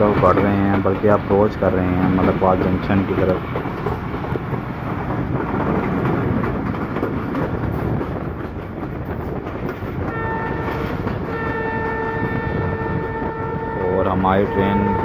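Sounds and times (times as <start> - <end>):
train wheels rumbling on track: 0.0 - 15.0
train horn blast: 10.0 - 15.0.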